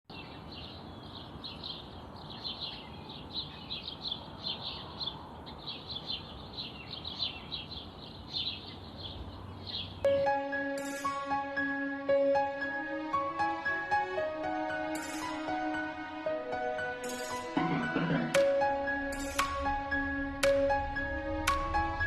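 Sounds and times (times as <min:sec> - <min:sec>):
small birds chirping: 0:00.1 - 0:11.1
steady outdoor hiss: 0:00.1 - 0:22.0
gentle music with sustained tones: 0:10.0 - 0:22.0.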